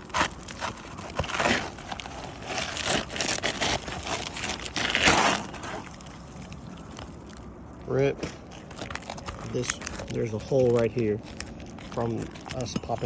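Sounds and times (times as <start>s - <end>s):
roof shingles crackling and scraping: 0.0s - 13.0s.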